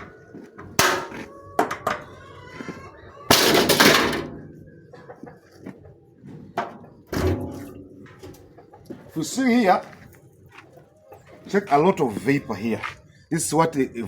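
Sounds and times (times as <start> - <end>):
pot cover clattering and scraping: 0.8 - 2.0, 3.3 - 4.3.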